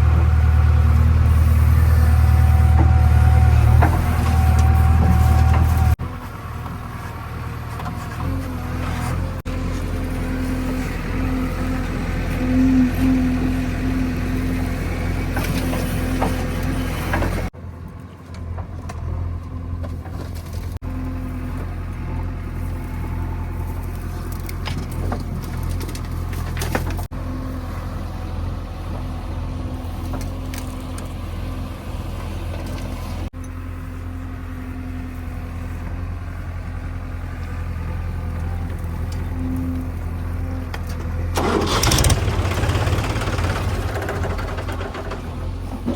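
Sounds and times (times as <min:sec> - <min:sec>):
heavy diesel engine running: 0:00.0 - 0:17.6, 0:19.0 - 0:45.9.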